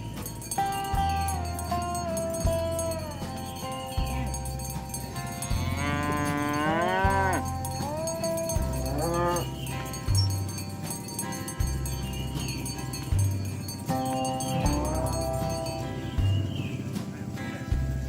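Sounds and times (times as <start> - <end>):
background music with bass line: 0.0 - 18.0
cow mooing: 5.2 - 10.0.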